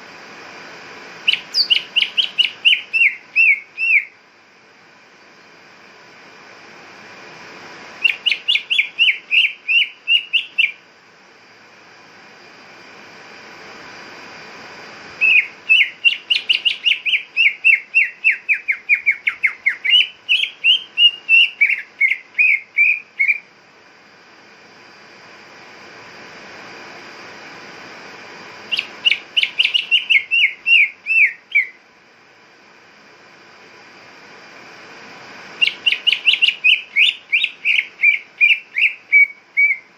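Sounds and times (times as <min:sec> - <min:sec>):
steady background hiss: 0:00.0 - 0:39.9
bird singing whistled notes: 0:01.2 - 0:04.2, 0:08.0 - 0:10.8, 0:15.2 - 0:23.5, 0:28.7 - 0:31.8, 0:35.6 - 0:39.9.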